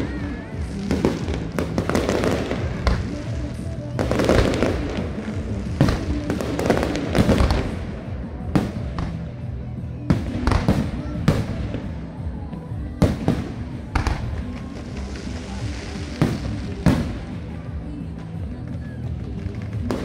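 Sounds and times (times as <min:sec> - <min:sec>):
fireworks bangs: 0:00.0 - 0:09.4, 0:12.9 - 0:17.6
music playing: 0:00.0 - 0:20.0.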